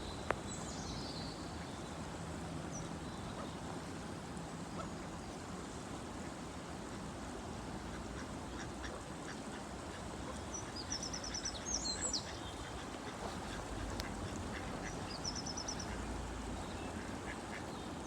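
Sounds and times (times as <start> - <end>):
steady background hiss: 0.0 - 18.0
ducks calling: 11.2 - 16.1.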